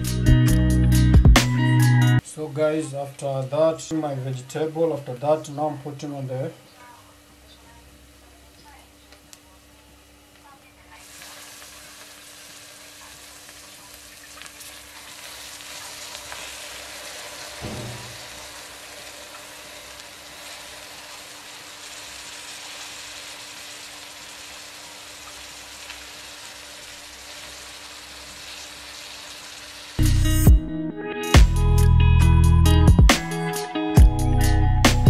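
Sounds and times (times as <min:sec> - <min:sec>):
greens sizzling in a pot: 0:02.2 - 0:30.2
short low thud: 0:17.6 - 0:18.3.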